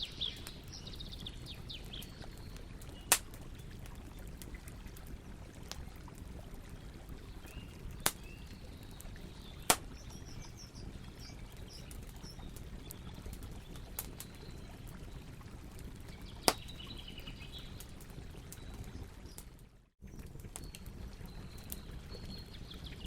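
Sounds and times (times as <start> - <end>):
faint birds chirping: 0.0 - 5.5
campfire rumble and hiss: 0.0 - 23.0
wood crackling pops: 2.8 - 4.0, 8.0 - 8.3, 9.7 - 10.1, 16.4 - 16.7.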